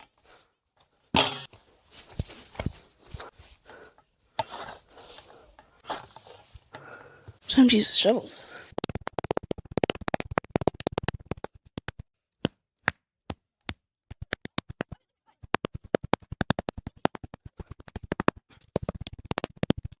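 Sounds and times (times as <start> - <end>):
shovels patting dirt: 4.4 - 6.6.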